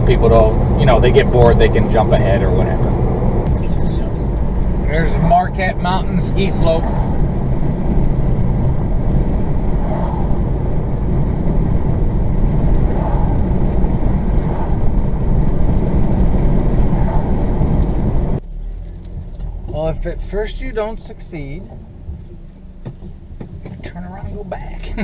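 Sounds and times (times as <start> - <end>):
car engine and tyre rumble: 0.0 - 25.0.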